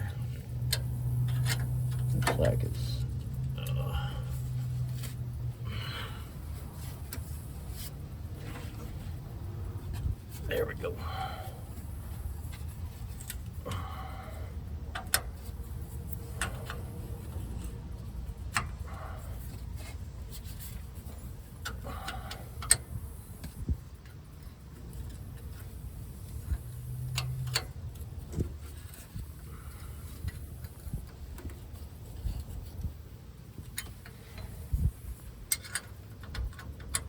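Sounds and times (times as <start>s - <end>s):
steady low rumble: 0.0s - 37.0s
wrench clicking on metal nut: 35.4s - 37.0s.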